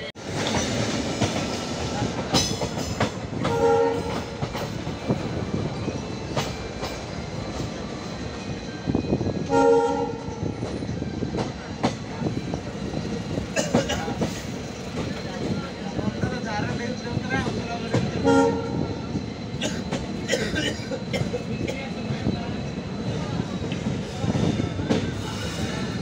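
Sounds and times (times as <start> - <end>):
train rumble and wheel clatter: 0.0 - 26.0
train horn blasts: 3.4 - 4.4, 9.4 - 10.4, 18.2 - 18.9.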